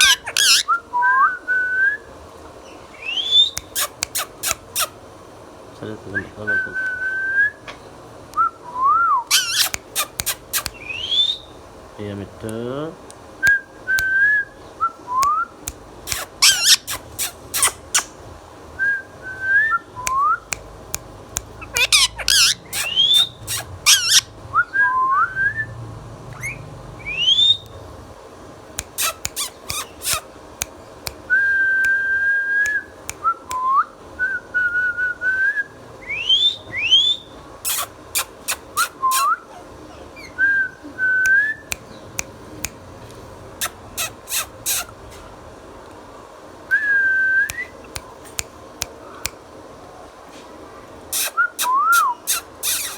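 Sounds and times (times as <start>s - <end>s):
parrot whistling: 0.0s - 1.9s, 3.0s - 4.9s, 8.8s - 11.6s, 16.1s - 18.1s, 21.6s - 25.7s, 26.4s - 27.7s, 28.8s - 30.2s, 36.0s - 39.5s, 51.2s - 52.9s
sharp piercing clicks: 3.5s - 4.9s, 9.3s - 10.9s, 15.2s - 18.2s, 20.1s - 24.2s, 28.8s - 31.2s, 51.2s - 52.9s.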